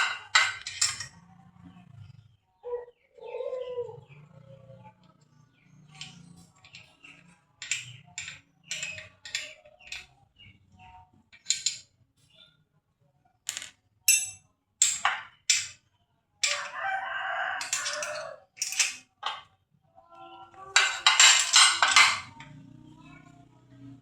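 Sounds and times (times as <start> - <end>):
rooster crowing: 16.5 - 18.5.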